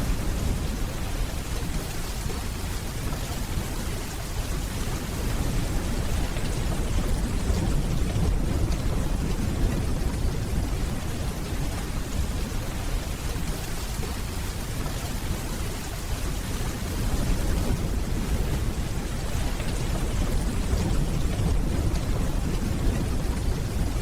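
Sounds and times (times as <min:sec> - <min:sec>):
steady rainfall: 0:00.0 - 0:24.0
distant thunder rumbling: 0:05.0 - 0:14.4, 0:16.6 - 0:24.0.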